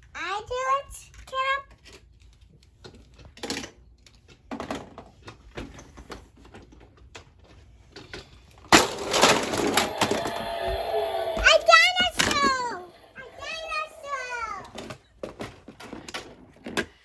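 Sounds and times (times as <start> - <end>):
plastic toys clicking and clattering: 1.1 - 9.9
loud rushing noise: 8.9 - 14.7.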